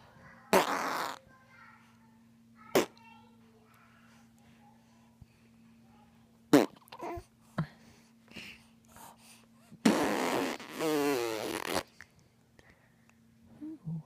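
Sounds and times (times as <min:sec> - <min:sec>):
lips blowing a raspberry: 0:00.5 - 0:01.2, 0:09.8 - 0:12.0.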